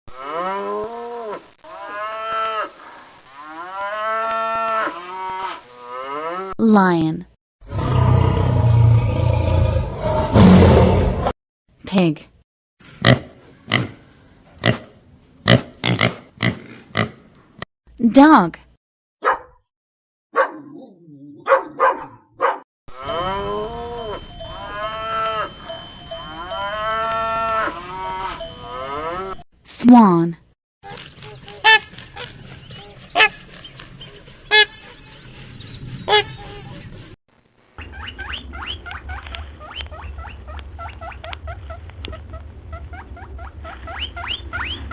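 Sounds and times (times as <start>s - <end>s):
cow mooing: 0.1s - 2.7s, 3.4s - 6.6s, 20.4s - 25.6s, 26.3s - 29.4s
dog barking: 19.2s - 19.6s, 20.3s - 20.8s, 21.4s - 22.7s.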